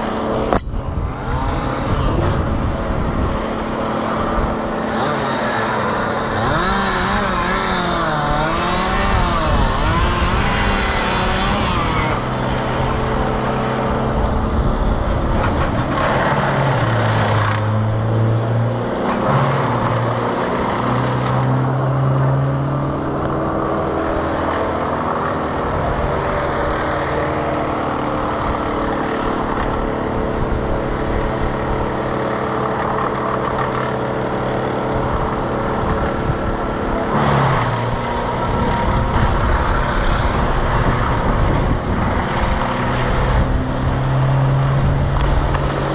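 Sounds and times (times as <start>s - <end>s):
engine running: 0.0s - 45.9s.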